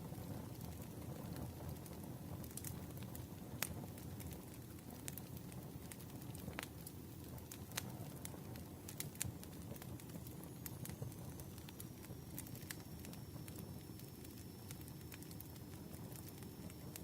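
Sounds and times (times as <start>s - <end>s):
campfire crackling: 0.0s - 17.0s
faint high whistle: 10.6s - 17.0s.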